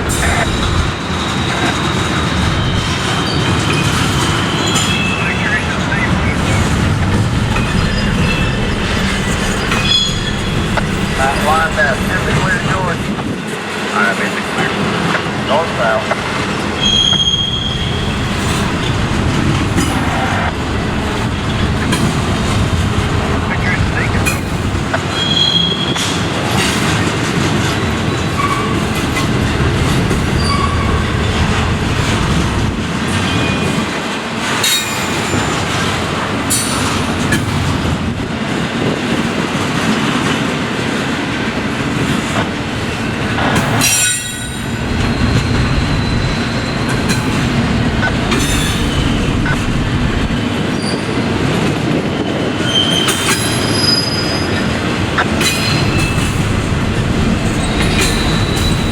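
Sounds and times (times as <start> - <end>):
high wheel squeals: 7.5 - 12.9, 16.8 - 18.8, 25.1 - 26.2, 28.4 - 29.0, 30.2 - 31.4, 43.8 - 49.7, 52.6 - 54.7, 57.4 - 58.9
wheels clicking over rail joints: 43.2 - 49.8, 52.6 - 58.9.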